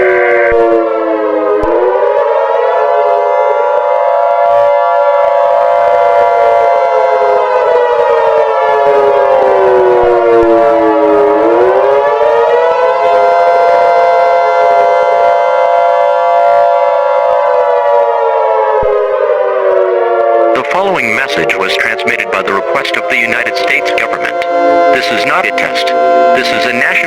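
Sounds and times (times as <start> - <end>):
civil defense siren winding: 0.0 - 27.0
two-tone alert signal: 20.6 - 27.0.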